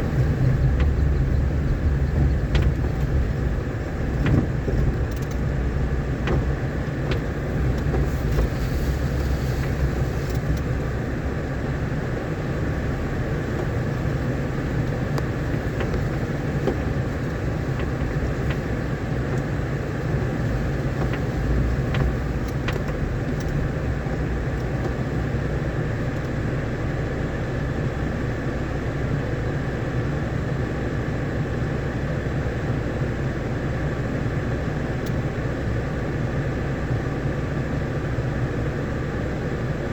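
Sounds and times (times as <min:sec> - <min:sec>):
vehicle engine and road rumble: 0:00.0 - 0:39.9
rattling clicks and knocks: 0:00.1 - 0:08.6, 0:14.8 - 0:25.1.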